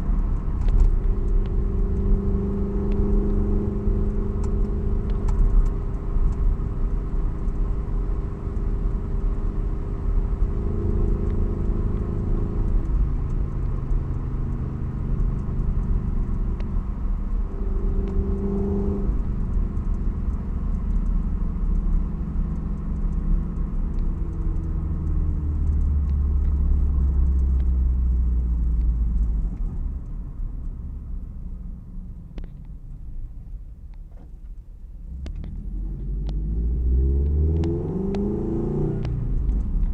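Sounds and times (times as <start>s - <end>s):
car exhaust rumble: 0.0s - 39.9s.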